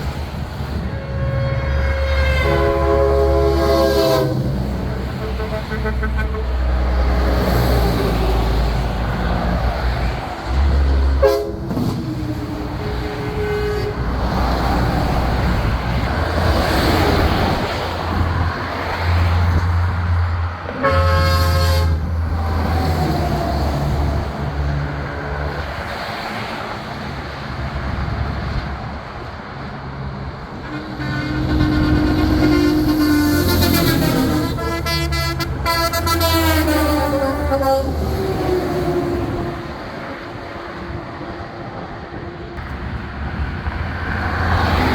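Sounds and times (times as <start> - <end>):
trucks driving past: 0.0 - 44.9
truck air horn blasts: 0.7 - 8.2, 11.1 - 12.0, 12.8 - 14.4, 20.7 - 22.8, 30.5 - 41.0.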